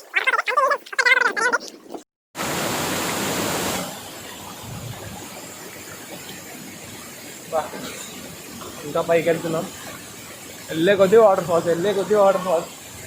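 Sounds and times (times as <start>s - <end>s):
voices: 0.0s - 2.0s
waterfall rushing: 2.4s - 13.0s.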